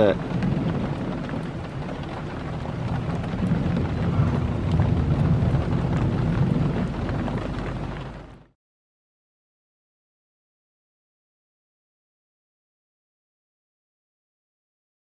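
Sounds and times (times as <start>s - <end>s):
low rumble: 0.0s - 8.6s
steady rain: 0.0s - 8.6s.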